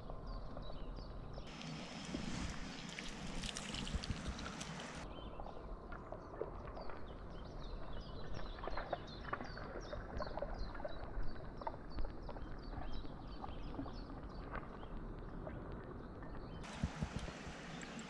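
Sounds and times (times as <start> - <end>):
songbird singing: 0.1 - 5.7, 16.0 - 18.0.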